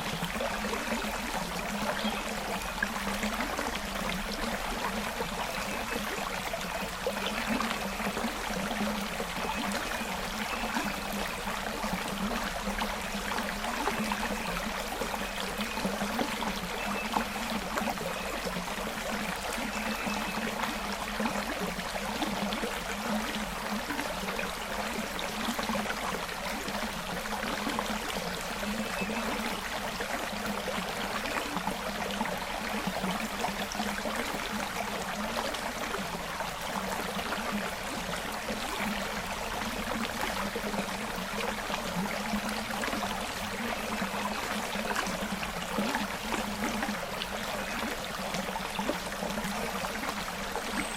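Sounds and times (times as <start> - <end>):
creek water trickling over stones: 0.0 - 50.9.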